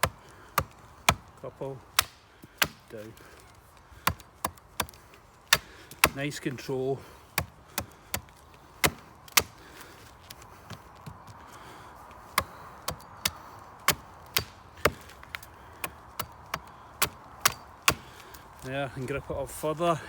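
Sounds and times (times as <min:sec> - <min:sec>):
axe chopping wood: 0:00.0 - 0:03.4, 0:04.0 - 0:06.4, 0:07.3 - 0:09.9, 0:12.3 - 0:18.4.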